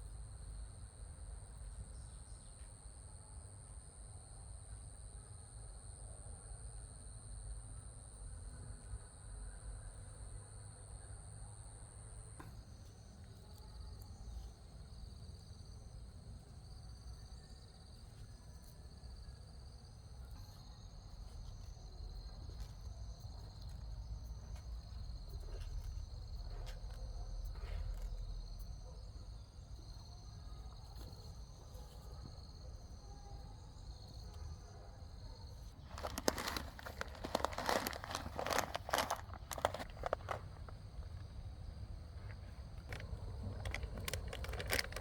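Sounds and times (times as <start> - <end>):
insects chirring: 11.6 - 45.0
crackling crunching rustle: 20.4 - 28.5, 35.6 - 41.4, 42.0 - 45.0.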